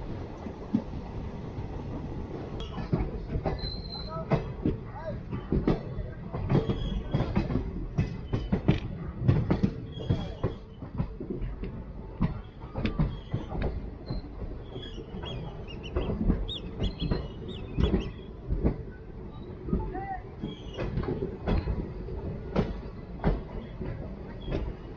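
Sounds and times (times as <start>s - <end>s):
train wheels clattering: 0.0s - 24.9s
high wheel squeals: 3.5s - 4.2s.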